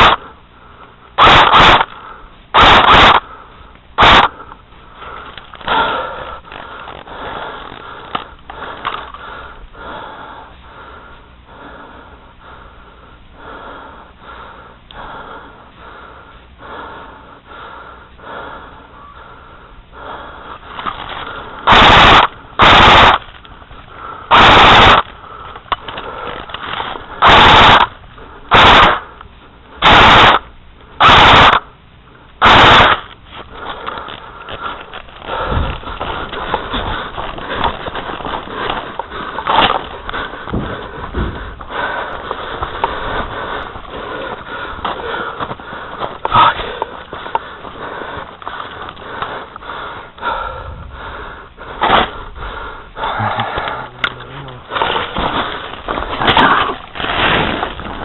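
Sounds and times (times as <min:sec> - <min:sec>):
airsoft rifle full-auto bursts: 0:00.0 - 0:00.2, 0:01.2 - 0:02.0, 0:02.6 - 0:03.3, 0:04.0 - 0:04.4, 0:21.6 - 0:23.4, 0:24.3 - 0:25.1, 0:26.2 - 0:29.0, 0:29.8 - 0:31.7, 0:32.4 - 0:33.2.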